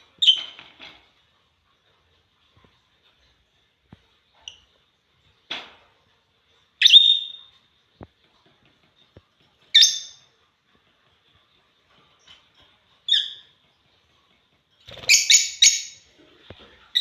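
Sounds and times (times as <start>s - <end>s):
soft bird chirp: 6.6s - 7.6s, 12.0s - 16.1s.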